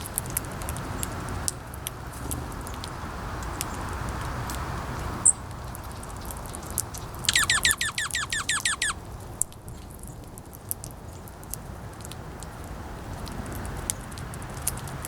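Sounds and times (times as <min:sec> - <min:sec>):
wind noise: 0:00.0 - 0:15.0
bird calling falling notes: 0:05.2 - 0:09.0
short high bird chirp: 0:07.0 - 0:09.0.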